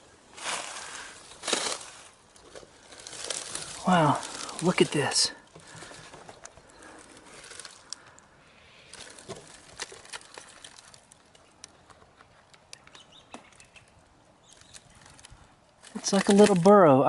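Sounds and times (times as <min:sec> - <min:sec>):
dry leaves and twigs rustling: 0:00.0 - 0:17.0
sharp clicks: 0:09.8 - 0:16.8.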